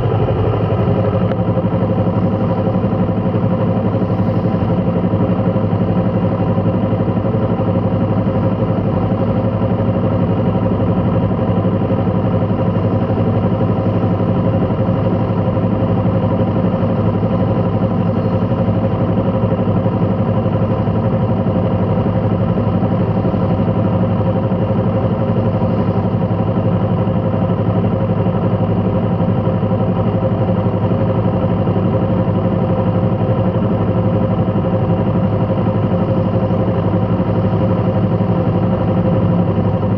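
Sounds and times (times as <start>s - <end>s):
vehicle engine idling: 0.0s - 39.9s.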